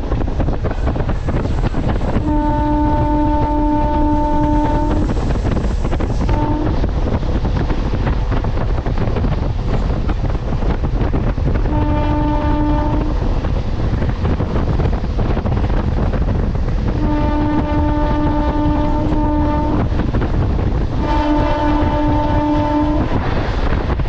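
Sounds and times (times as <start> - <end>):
electric train rumbling: 0.0 - 24.0
train horn blasts: 2.1 - 5.3, 6.2 - 6.9, 11.6 - 13.3, 16.9 - 20.2, 20.9 - 23.5.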